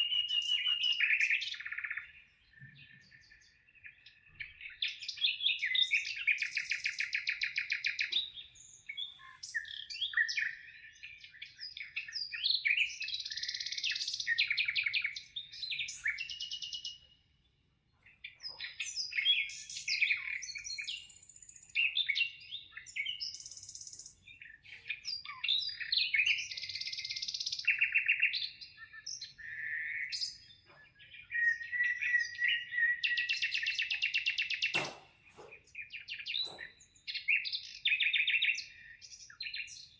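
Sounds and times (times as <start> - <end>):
birds singing trills and chirps: 0.0 - 39.9.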